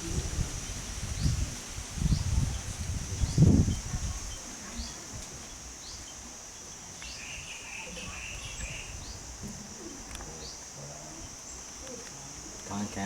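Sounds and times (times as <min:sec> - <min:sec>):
bird warbling song: 0:03.2 - 0:10.6.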